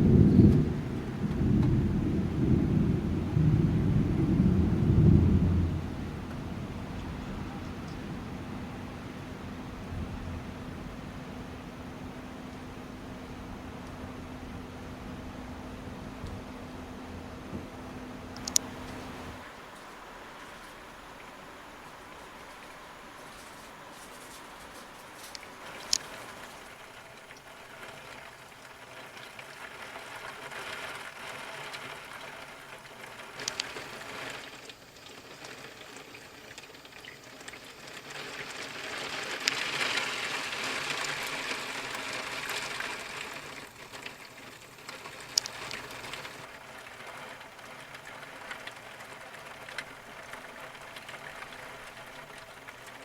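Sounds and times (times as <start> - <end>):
wind gusts: 0.0 - 13.6, 18.4 - 34.8, 39.1 - 53.0
heavy rain: 0.0 - 13.7, 18.4 - 53.0
drops ticking on a surface: 33.4 - 33.9, 44.1 - 53.0.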